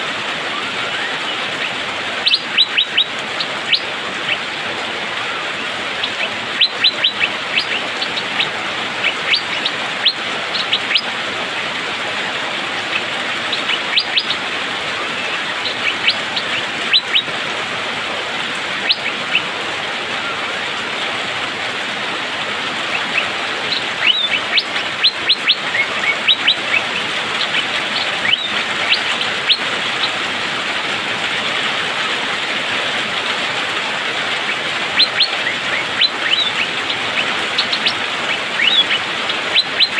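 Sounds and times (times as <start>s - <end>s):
bird singing chip notes: 0.6s - 11.2s, 12.7s - 17.4s, 18.6s - 19.6s, 22.8s - 30.3s, 34.3s - 39.9s.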